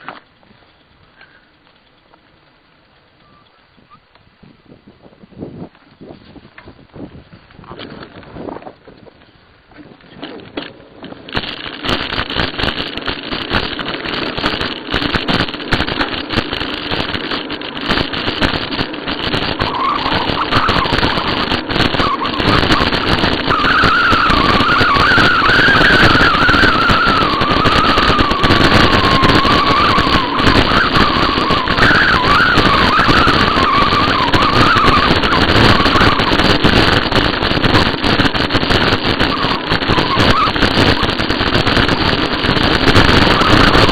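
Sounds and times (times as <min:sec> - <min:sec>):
wind and tyres rushing: 0:00.0 - 0:43.9
wavering high squeal: 0:19.6 - 0:36.8, 0:39.0 - 0:43.9.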